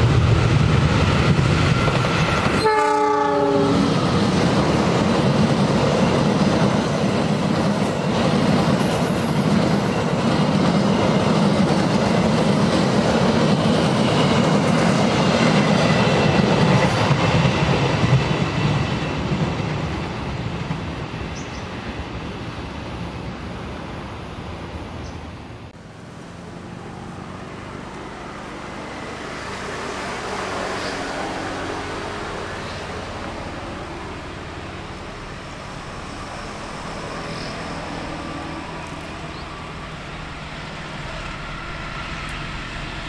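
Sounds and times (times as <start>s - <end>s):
train passing: 0.0s - 43.0s
train horn blast: 2.6s - 3.9s.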